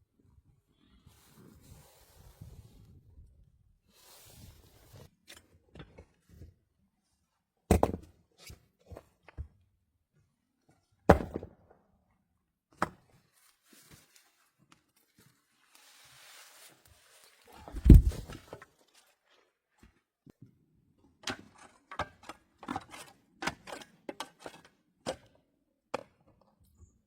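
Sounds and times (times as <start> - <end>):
rustling: 15.2 - 18.5.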